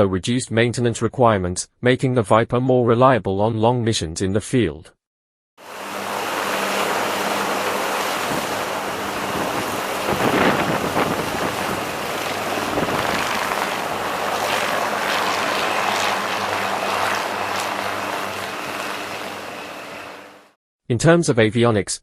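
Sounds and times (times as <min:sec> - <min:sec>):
helicopter running: 0:05.6 - 0:20.6.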